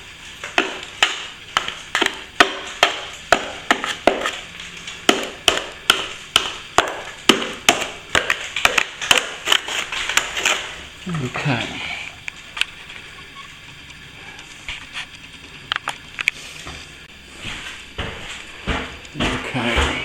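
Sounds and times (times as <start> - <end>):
plastering tool tapping ceiling: 0.5 - 10.8.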